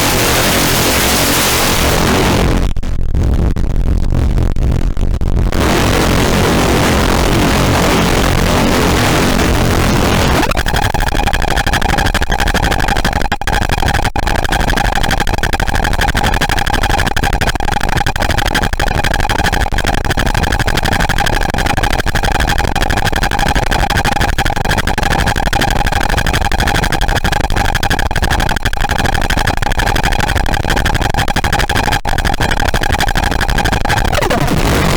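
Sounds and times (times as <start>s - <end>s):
harsh distorted noise drone: 0.0s - 19.2s, 29.5s - 34.9s.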